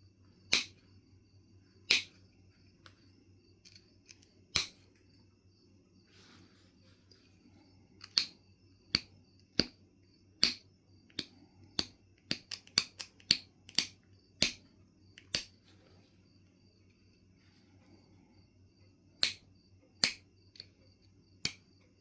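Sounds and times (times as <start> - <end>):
stone knapping clicks: 0.5 - 0.8, 1.9 - 2.2, 3.6 - 4.8, 8.0 - 9.8, 10.4 - 15.5, 19.2 - 20.7, 21.4 - 21.7.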